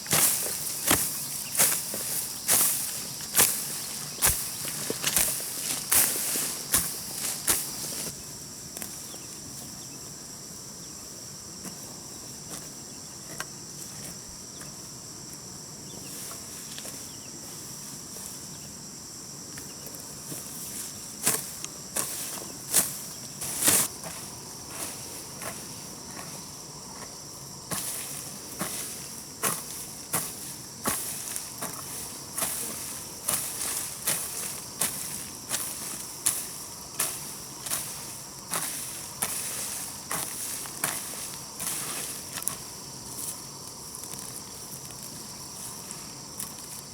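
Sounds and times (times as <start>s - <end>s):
garden hoe chopping soil: 0.0s - 8.1s, 29.4s - 42.6s
insects chirring: 0.0s - 46.9s.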